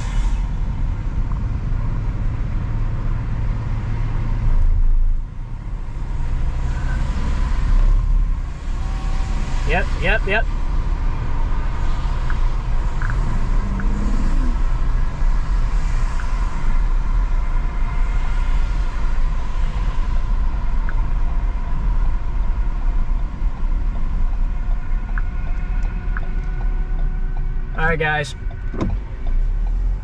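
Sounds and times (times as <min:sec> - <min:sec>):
car cabin rumble: 0:07.9 - 0:17.5, 0:20.2 - 0:30.0
faint ticks: 0:13.0 - 0:14.5.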